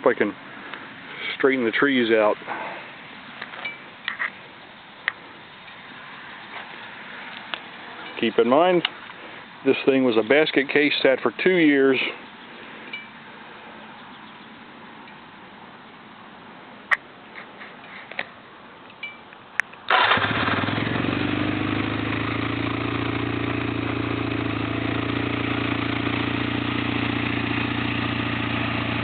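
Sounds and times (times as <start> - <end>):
motorcycle engine starting and idling: 19.8 - 29.0.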